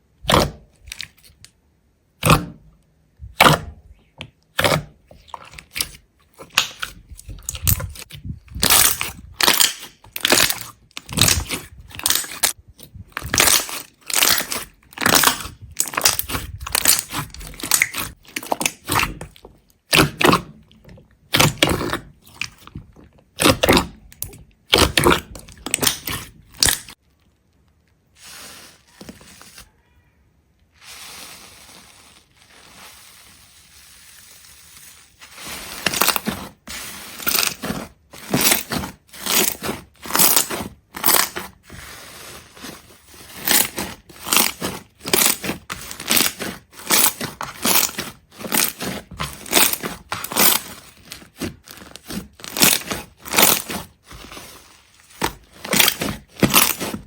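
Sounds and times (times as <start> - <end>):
sharp crunches: 4.6 - 19.3, 35.3 - 57.0.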